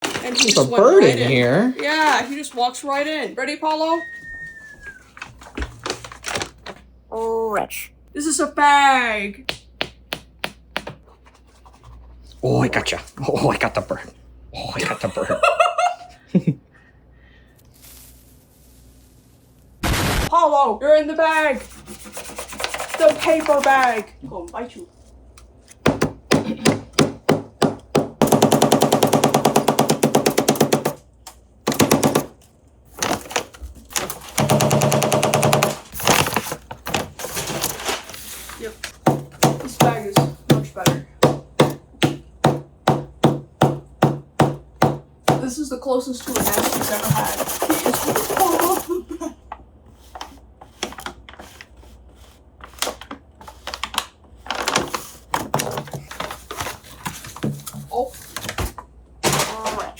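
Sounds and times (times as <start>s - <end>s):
paper bag crinkling: 5.0s - 6.8s, 17.6s - 20.3s, 32.9s - 34.5s, 35.7s - 39.0s, 54.4s - 57.3s
parrot beak tapping paper bag: 32.9s - 37.6s.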